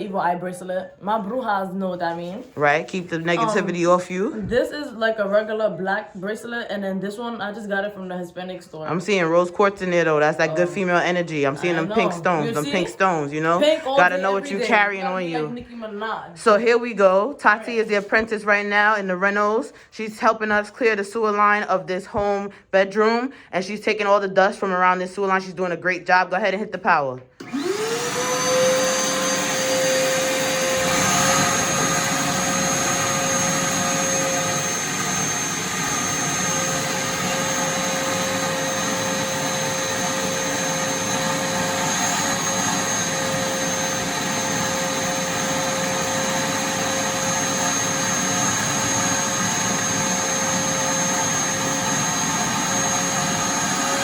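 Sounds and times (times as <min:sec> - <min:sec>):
vacuum cleaner whining: 0:02.6 - 0:04.6, 0:08.9 - 0:15.7, 0:27.4 - 0:54.0.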